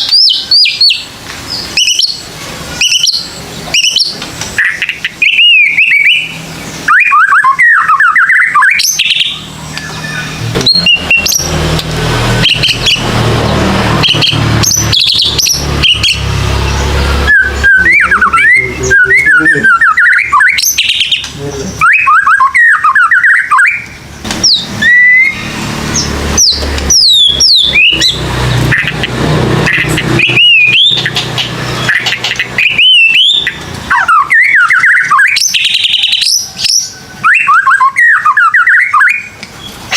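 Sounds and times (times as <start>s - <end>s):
bird singing whistled phrases: 0.0s - 11.6s, 14.0s - 16.2s, 16.8s - 28.2s, 29.7s - 31.2s, 31.8s - 39.4s.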